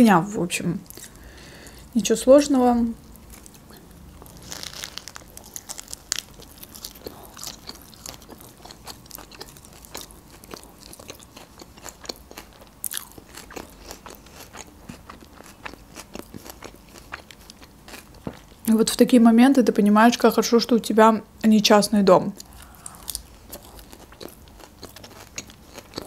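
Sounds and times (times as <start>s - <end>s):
person chewing food: 0.9s - 1.9s, 3.1s - 18.7s, 22.4s - 26.0s.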